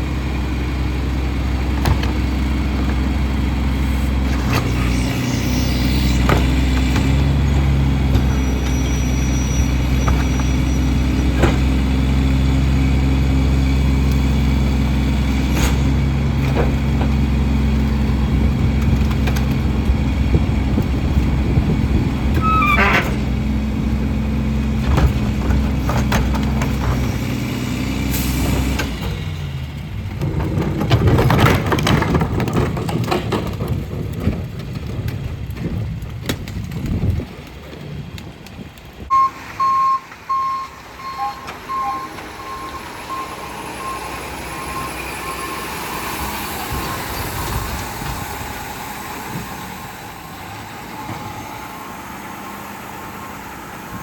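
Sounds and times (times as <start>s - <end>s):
diesel engine running: 0.0s - 54.0s
reversing alarm beeps: 39.1s - 46.0s.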